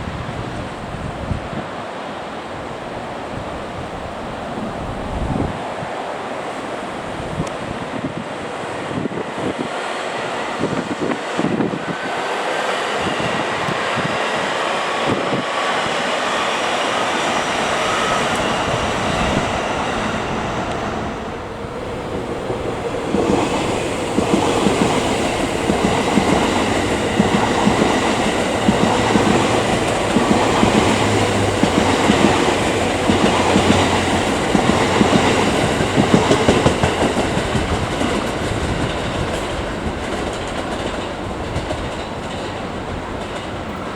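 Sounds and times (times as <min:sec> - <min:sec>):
train running noise: 0:00.0 - 0:43.9
wheels clattering over rail joints: 0:16.2 - 0:43.9.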